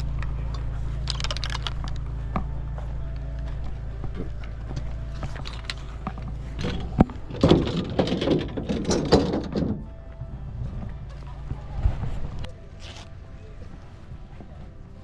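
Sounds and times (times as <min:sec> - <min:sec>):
golf clubs clattering: 0:00.0 - 0:09.9
steady low hum: 0:00.0 - 0:15.0.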